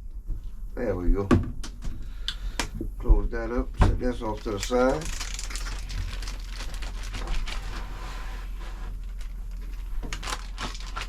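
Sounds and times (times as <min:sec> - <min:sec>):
steady low hum: 0:00.0 - 0:11.0
handling clicks and rustling: 0:04.0 - 0:07.8.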